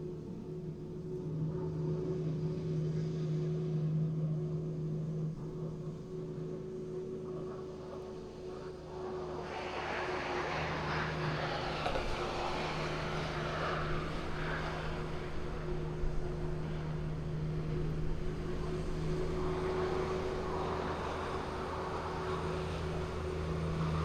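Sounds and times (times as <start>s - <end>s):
truck diesel engine droning: 9.4s - 24.0s.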